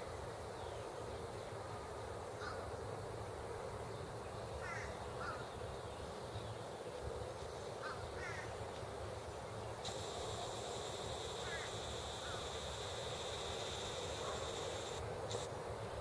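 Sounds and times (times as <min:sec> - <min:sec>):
low background noise: 0:00.0 - 0:16.0
birds calling: 0:09.8 - 0:15.5.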